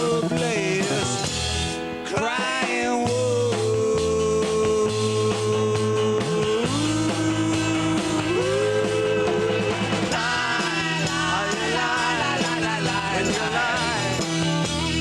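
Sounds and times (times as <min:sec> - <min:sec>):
rock band playing live: 0:00.0 - 0:15.0
sliding lead guitar notes: 0:06.4 - 0:15.0.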